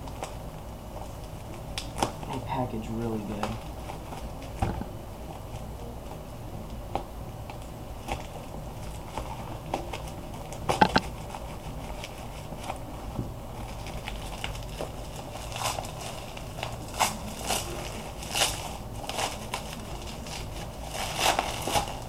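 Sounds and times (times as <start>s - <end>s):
plastic packaging crackling: 13.6s - 22.0s.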